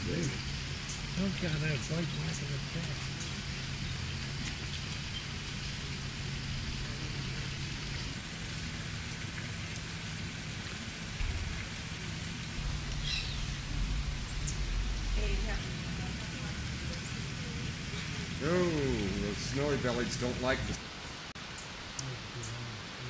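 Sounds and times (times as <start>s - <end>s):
low hum: 0.0s - 21.3s
rushing hiss: 0.0s - 23.0s
deep rumble: 10.8s - 20.8s
bird chirp: 12.7s - 15.9s.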